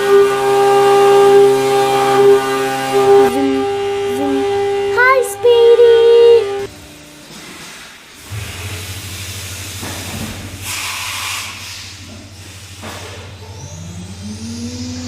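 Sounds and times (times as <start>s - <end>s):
cnc machine humming: 0.0s - 7.4s, 12.0s - 15.0s
motor whining up in pitch: 0.0s - 7.4s, 11.6s - 15.0s
hissing bursts: 7.6s - 14.6s.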